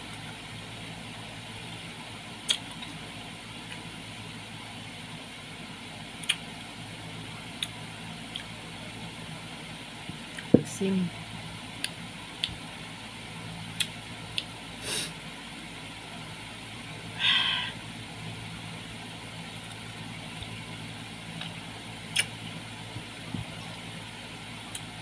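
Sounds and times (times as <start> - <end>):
steady low hum: 0.0 - 25.0
chewing smacks and crunches: 2.4 - 3.0, 6.2 - 6.5, 21.4 - 22.4
wet mouth sound: 22.1 - 22.3.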